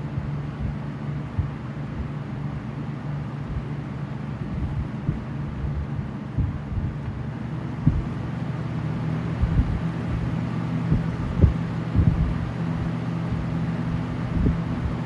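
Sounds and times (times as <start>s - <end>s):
box fans running: 0.0s - 15.0s
air buffeting microphone: 3.3s - 15.0s.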